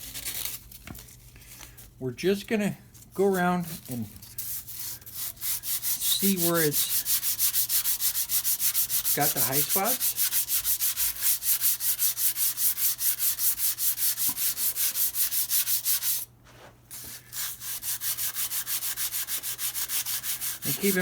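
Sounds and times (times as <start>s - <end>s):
sandpaper rubbing on metal: 3.2s - 16.3s, 16.9s - 21.0s.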